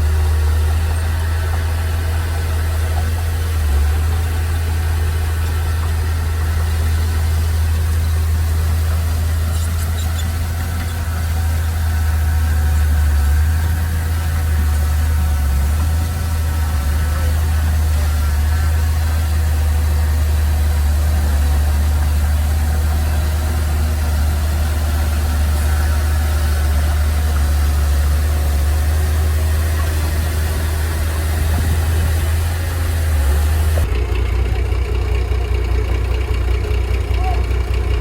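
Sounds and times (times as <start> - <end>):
heavy machinery diesel engine: 0.0 - 38.0.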